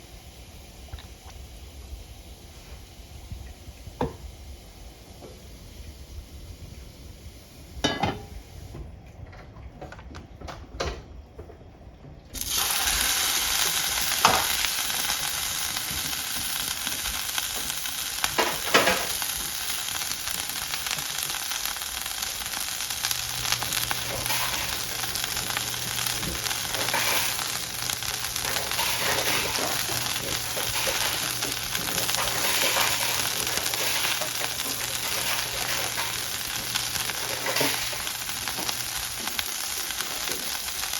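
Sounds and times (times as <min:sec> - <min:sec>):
steak sizzling in pan: 0:12.4 - 0:40.9.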